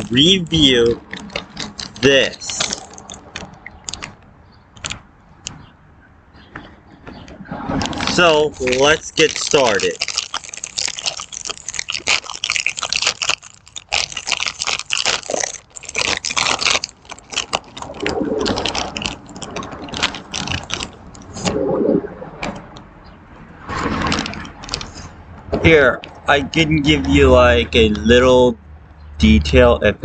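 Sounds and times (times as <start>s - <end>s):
plastic snack bag crinkling: 0.0s - 4.2s, 7.8s - 21.4s, 23.8s - 25.0s.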